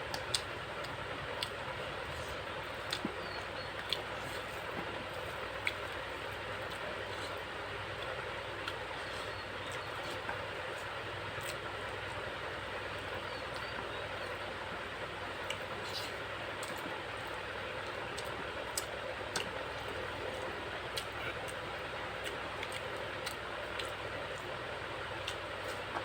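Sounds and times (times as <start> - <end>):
eating clicks: 0.1 - 4.2, 17.8 - 21.6.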